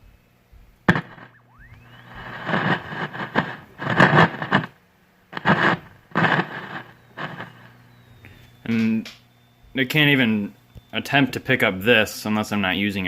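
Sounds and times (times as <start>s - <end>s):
low hum: 0.0s - 11.1s
radio static crackling: 0.9s - 11.9s
short rising whistle: 1.2s - 3.2s, 6.5s - 8.8s.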